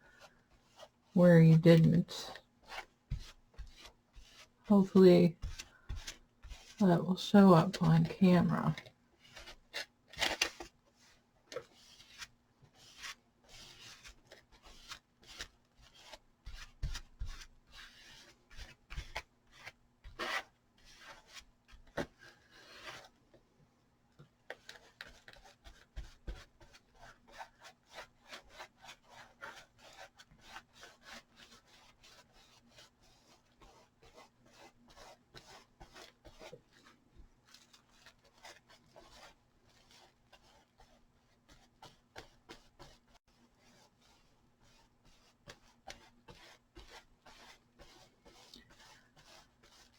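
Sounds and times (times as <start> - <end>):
paintbrush scratchy strokes: 37.5 - 49.9.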